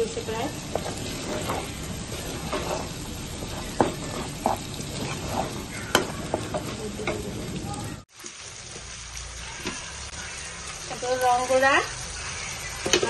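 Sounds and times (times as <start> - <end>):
food sizzling in oil: 0.0 - 13.0
metal spatula knocking and scraping pan: 0.6 - 7.4.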